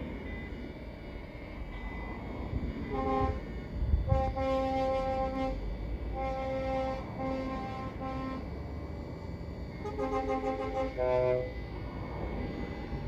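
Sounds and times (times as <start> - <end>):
truck air horn blasts: 2.9 - 3.4, 4.1 - 8.5, 9.8 - 11.6.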